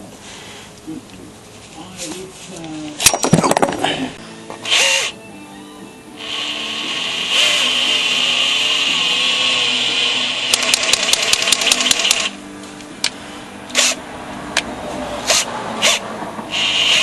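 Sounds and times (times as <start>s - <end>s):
electric drill running: 4.6s - 5.1s, 6.2s - 12.4s, 16.5s - 17.0s
sharp clicks: 10.5s - 12.3s.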